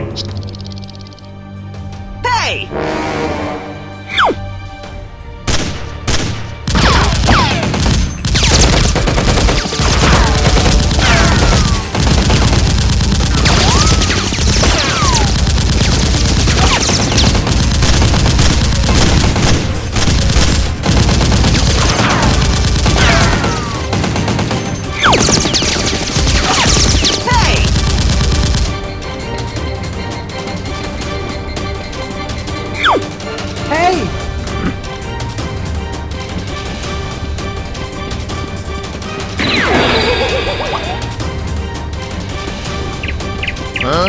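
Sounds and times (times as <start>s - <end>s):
background music: 0.0s - 44.0s
rapid gunfire: 5.5s - 28.9s.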